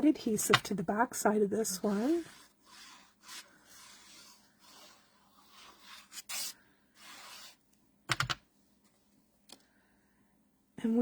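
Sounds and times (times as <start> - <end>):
rubbing strokes on paper: 1.6 - 7.6.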